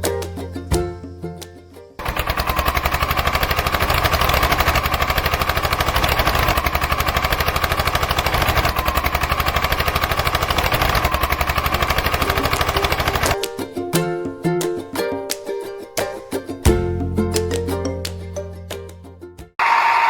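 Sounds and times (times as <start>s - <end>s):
small engine running: 2.0s - 13.4s.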